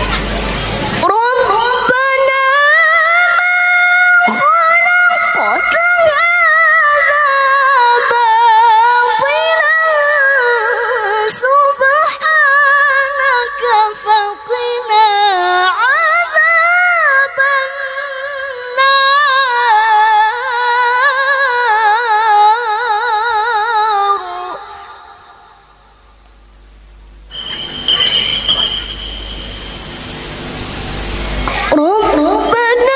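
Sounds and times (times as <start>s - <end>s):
woman reciting melodically: 1.0s - 25.8s, 31.5s - 32.9s.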